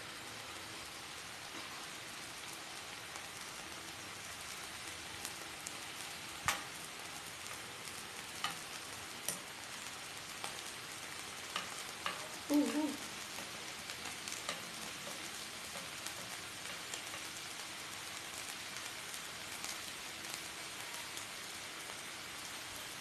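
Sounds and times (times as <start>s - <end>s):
meat sizzling in a pan: 0.0s - 23.0s
sharp pops of frying fat: 6.3s - 17.8s.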